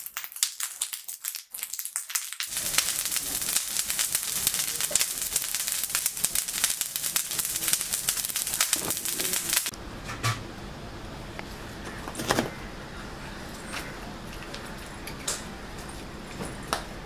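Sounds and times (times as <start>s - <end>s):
food frying in hot oil: 0.0s - 9.8s.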